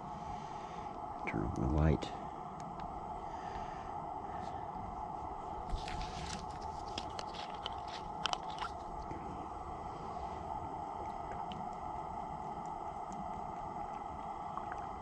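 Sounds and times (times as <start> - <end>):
crunching crackling clicks: 5.7 - 9.2.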